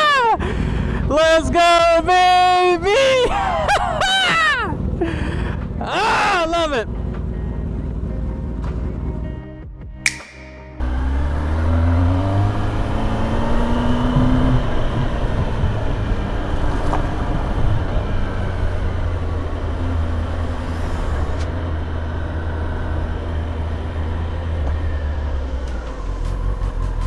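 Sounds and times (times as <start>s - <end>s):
motorcycle engine riding: 6.9s - 9.4s, 10.8s - 27.0s.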